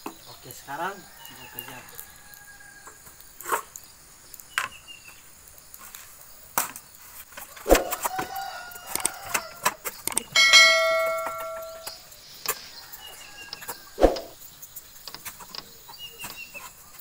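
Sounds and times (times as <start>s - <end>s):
rooster crowing: 0.6s - 3.1s, 7.7s - 9.8s, 10.4s - 11.9s, 12.6s - 14.3s
loud ringing chime: 10.4s - 11.9s.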